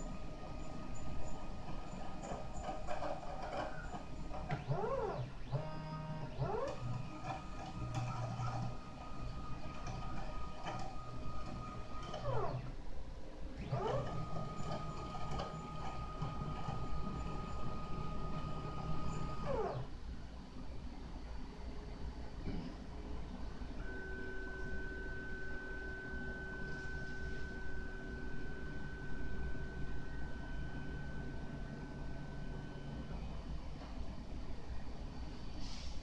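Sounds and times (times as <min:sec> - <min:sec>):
stepper motors whining: 0:00.0 - 0:12.8, 0:13.6 - 0:19.9.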